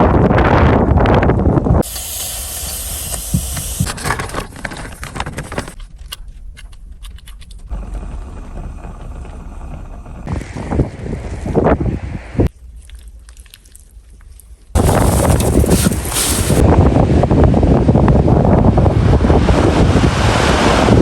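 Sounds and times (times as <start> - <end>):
strong wind hissing: 0.2 - 3.9, 14.8 - 21.0.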